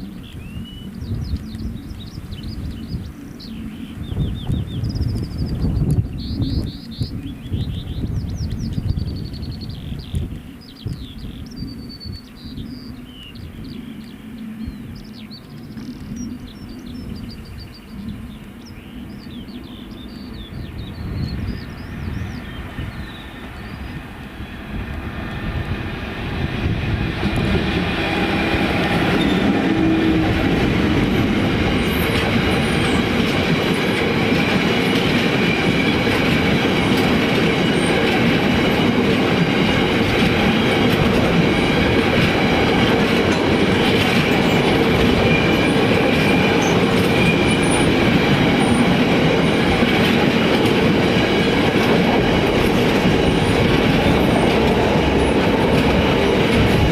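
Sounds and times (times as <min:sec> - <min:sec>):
freight train passing: 0:00.0 - 0:56.9
high wheel squeal: 0:28.3 - 0:30.6, 0:45.2 - 0:48.0.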